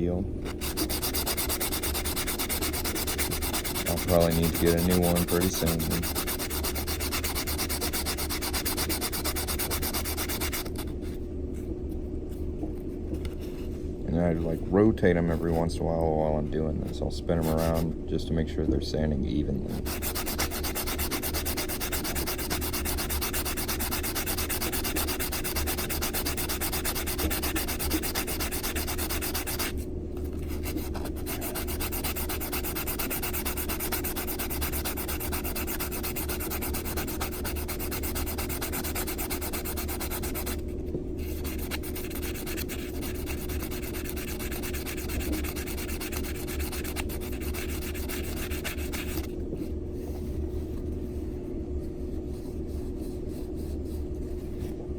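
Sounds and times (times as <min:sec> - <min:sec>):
metal rings rasping on nail file: 0:00.5 - 0:10.7, 0:19.8 - 0:29.8, 0:30.6 - 0:40.6, 0:41.4 - 0:49.3.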